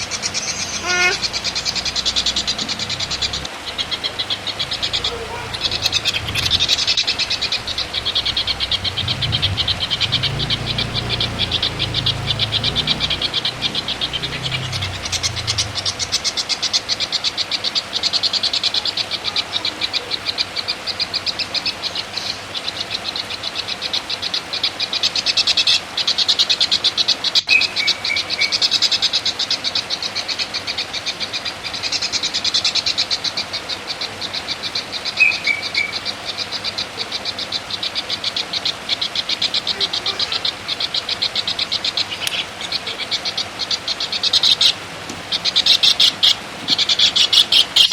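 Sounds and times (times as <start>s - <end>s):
animal high-pitched rapid trill: 0.6s - 2.8s, 3.9s - 16.6s, 39.4s - 41.1s.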